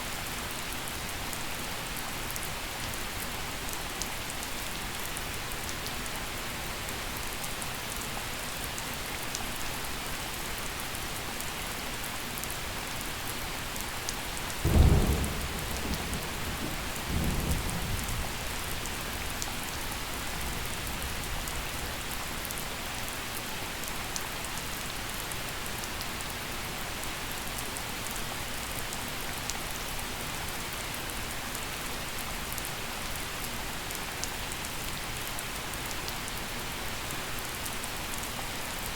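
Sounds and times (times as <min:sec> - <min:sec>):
gentle rainfall: 0:00.0 - 0:38.9
thunder crack and rumble: 0:14.6 - 0:21.7.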